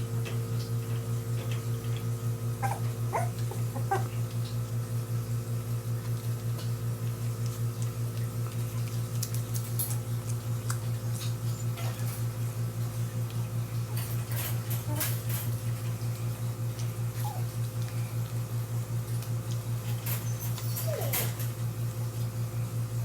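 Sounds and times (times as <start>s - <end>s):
puppies squeaking: 2.6s - 4.2s, 17.2s - 17.6s, 20.0s - 21.4s.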